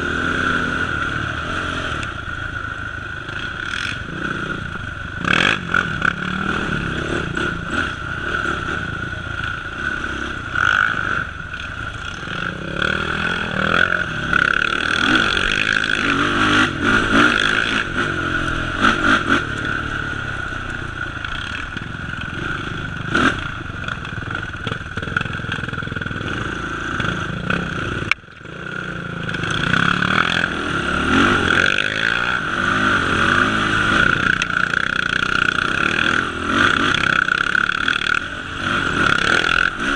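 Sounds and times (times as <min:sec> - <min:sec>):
atv engine revving: 0:00.0 - 0:39.9
clatter: 0:20.6 - 0:30.5, 0:31.2 - 0:39.9.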